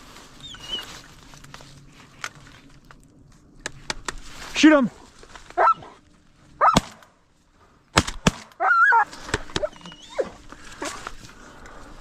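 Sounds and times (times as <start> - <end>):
shotgun shots: 6.7 - 7.1, 8.0 - 8.6.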